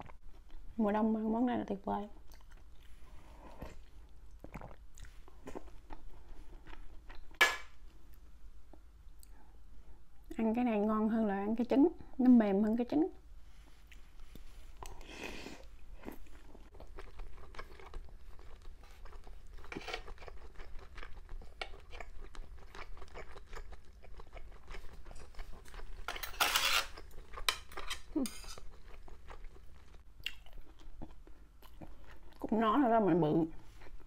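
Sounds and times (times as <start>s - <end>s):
wet chewing sounds: 16.0s - 26.1s, 26.8s - 32.5s.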